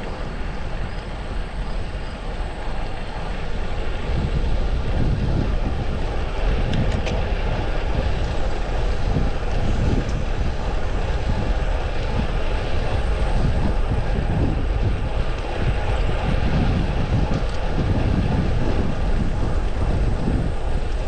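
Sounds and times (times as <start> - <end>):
road noise: 0.0 - 21.0
wind rushing over microphone: 0.0 - 21.0.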